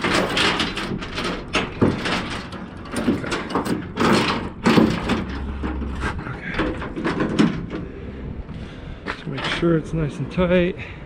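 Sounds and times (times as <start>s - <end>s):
chain clanking and rattling: 0.0s - 7.9s
metal knocks: 0.0s - 7.9s.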